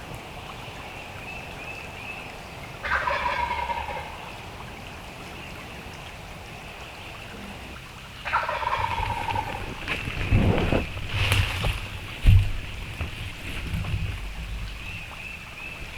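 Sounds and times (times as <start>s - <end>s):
turkey gobbling: 2.8s - 4.5s, 7.6s - 10.2s.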